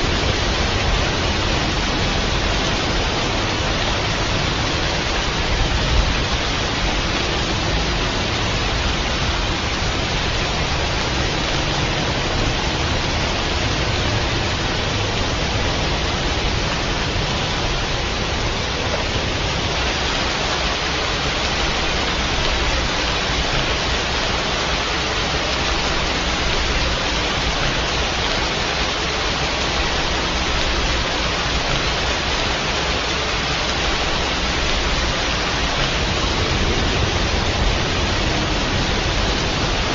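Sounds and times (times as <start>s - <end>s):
rain falling: 0.0s - 39.9s
low rumble: 34.3s - 39.9s.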